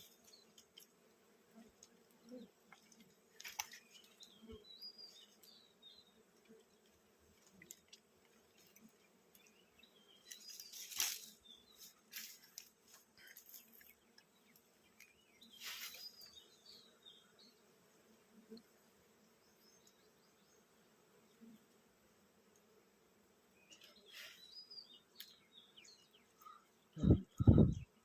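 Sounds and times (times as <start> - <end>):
honeybees buzzing: 0.0 - 28.0
sharp crackling rustles: 3.0 - 4.4, 10.2 - 14.0, 15.0 - 16.4.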